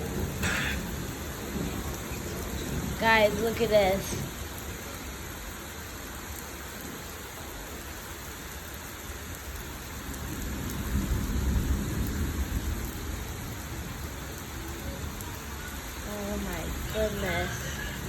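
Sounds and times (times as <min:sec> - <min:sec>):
thunder rumbling: 0:00.0 - 0:04.6, 0:10.1 - 0:15.2
heavy rain pouring: 0:00.0 - 0:18.0.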